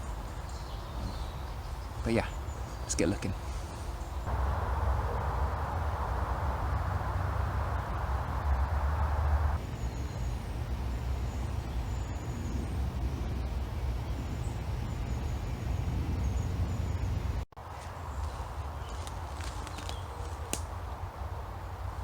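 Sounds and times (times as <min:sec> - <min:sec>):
small birds calling: 0:00.0 - 0:04.4
rustling hiss: 0:00.0 - 0:14.8
low outdoor rumble: 0:00.0 - 0:22.0.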